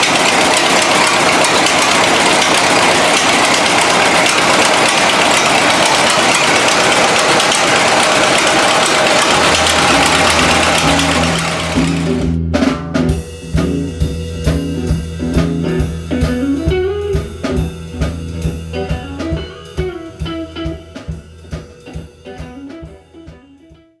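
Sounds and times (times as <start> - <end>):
tractor engine running: 0.0 - 12.4
music with guitar and drums: 9.5 - 24.0.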